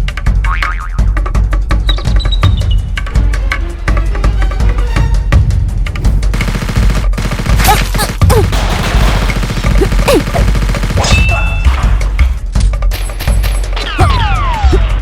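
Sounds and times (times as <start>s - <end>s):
rapid gunfire: 6.1s - 12.1s.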